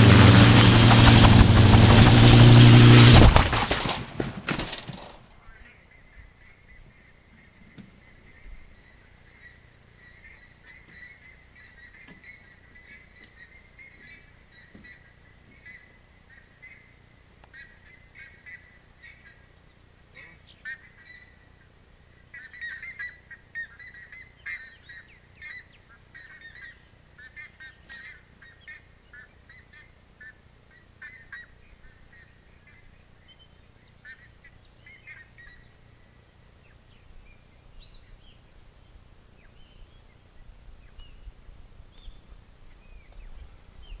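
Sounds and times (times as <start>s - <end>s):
faint short bird calls: 5.3s - 21.5s, 22.3s - 35.8s.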